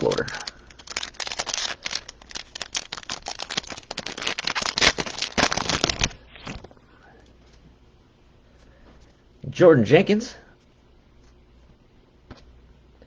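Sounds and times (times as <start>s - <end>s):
cards rustling: 0.0s - 6.8s
wrapper crinkling: 0.0s - 6.8s.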